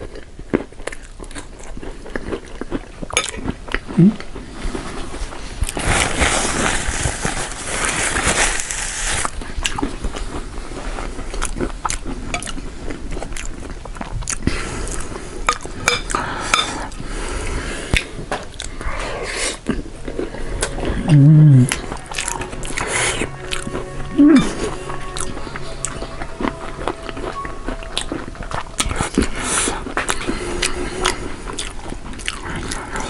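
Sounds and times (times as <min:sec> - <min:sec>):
crunching and chewing food: 0:00.0 - 0:33.0
person humming: 0:03.9 - 0:04.2, 0:20.7 - 0:29.9.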